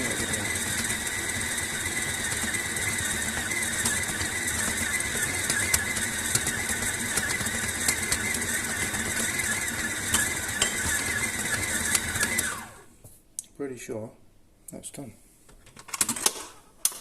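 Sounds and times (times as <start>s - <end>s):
electric mixer motor whining: 0.0s - 12.9s.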